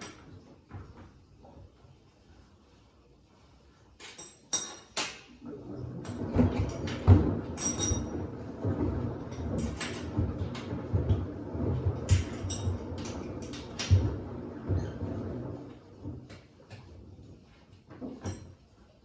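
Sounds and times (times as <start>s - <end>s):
washer drum rumble: 5.2s - 19.0s.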